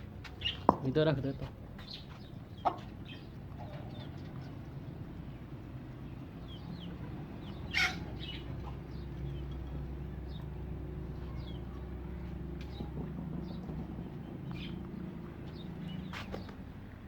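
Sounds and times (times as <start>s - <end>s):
birds chirping: 0.0s - 17.0s
chicken squawk: 7.6s - 8.4s.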